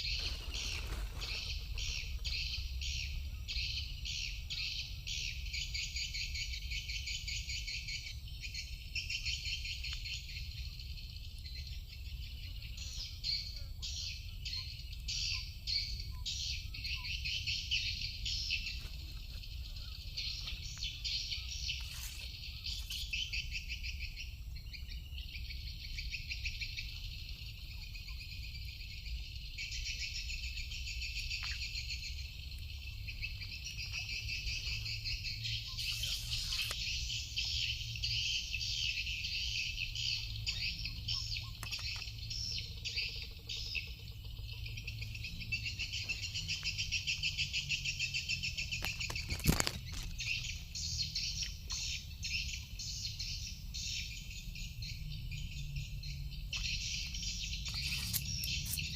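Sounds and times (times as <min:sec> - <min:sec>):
animal chirping rapidly: 0:19.6 - 0:24.1, 0:33.1 - 0:51.0, 0:56.6 - 0:58.9.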